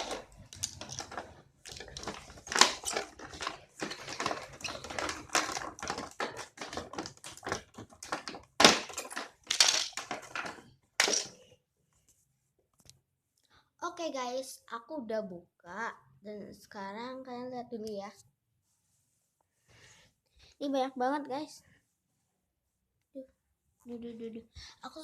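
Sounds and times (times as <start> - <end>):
packaging rustling and crackling: 0.0 - 11.3.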